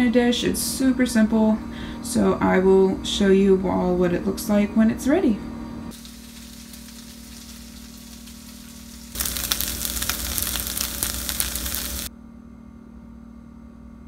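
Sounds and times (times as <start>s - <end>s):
chicken sizzling in frying pan: 5.9s - 12.1s.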